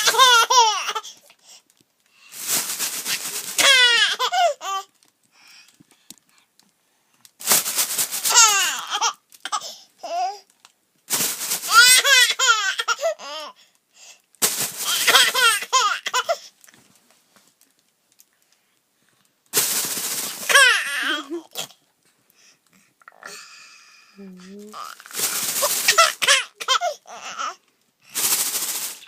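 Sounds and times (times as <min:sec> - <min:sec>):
plastic crinkling: 0:00.0 - 0:09.4, 0:10.5 - 0:12.5, 0:14.4 - 0:16.0, 0:19.4 - 0:22.1, 0:24.7 - 0:26.5, 0:28.1 - 0:29.0.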